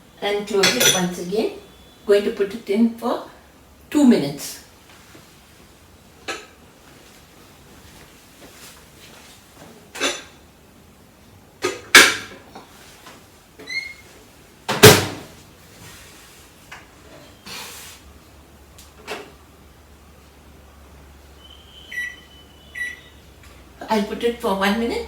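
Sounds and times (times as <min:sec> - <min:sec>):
microwave oven humming: 0:18.3 - 0:25.0
microwave keypad beeps: 0:21.4 - 0:23.2.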